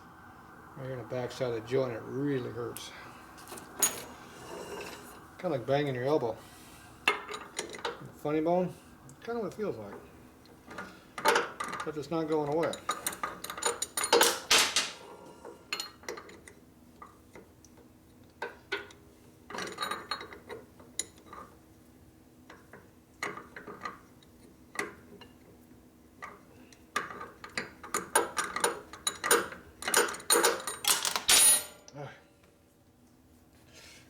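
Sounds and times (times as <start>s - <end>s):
metal tools clinking: 3.4s - 5.2s, 10.7s - 15.1s, 28.6s - 31.9s.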